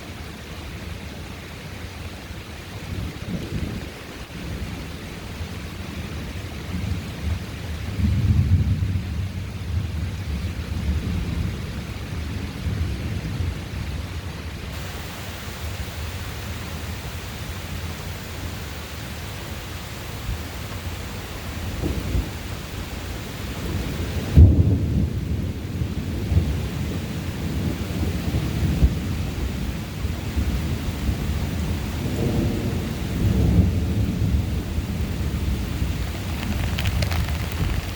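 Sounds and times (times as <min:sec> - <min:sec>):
rain hissing: 0:14.6 - 0:37.9
thunder rumbling: 0:14.8 - 0:29.6, 0:30.3 - 0:37.9.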